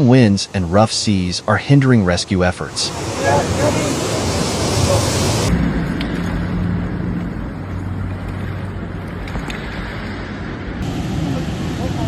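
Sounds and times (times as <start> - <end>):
rumbling noise: 2.2 - 12.0
low engine-like hum: 2.7 - 12.0.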